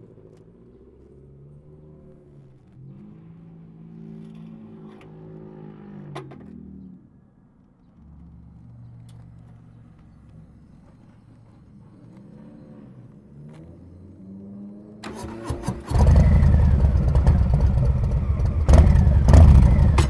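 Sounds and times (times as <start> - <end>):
motorcycle engine running: 15.5 - 20.0.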